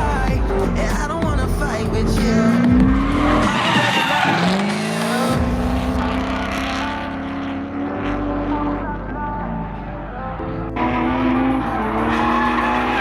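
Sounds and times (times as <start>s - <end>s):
tyres screeching: 0.0s - 5.4s
car engine revving: 0.0s - 13.0s
music with heavy bass: 0.0s - 13.0s.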